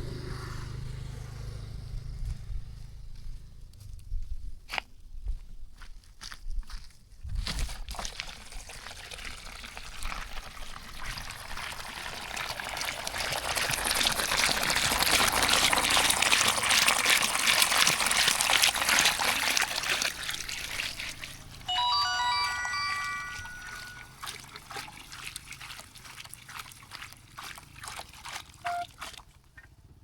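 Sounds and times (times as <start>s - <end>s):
water running and pouring: 7.9s - 29.1s.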